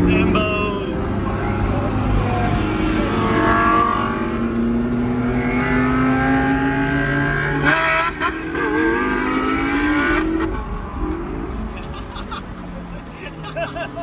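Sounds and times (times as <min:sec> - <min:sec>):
car engine accelerating: 0:00.0 - 0:13.1.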